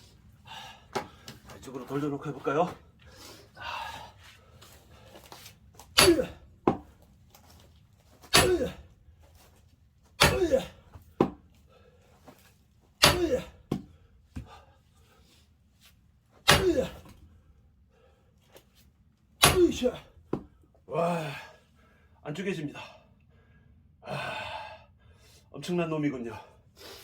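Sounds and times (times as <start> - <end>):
man grunting with effort: 6.0 - 6.4, 8.4 - 8.9, 10.2 - 10.9, 13.0 - 13.6, 16.5 - 17.1, 20.9 - 21.5
axe striking log: 6.0 - 6.9, 8.2 - 8.9, 10.2 - 11.4, 13.0 - 13.9, 16.4 - 17.2, 19.4 - 20.5.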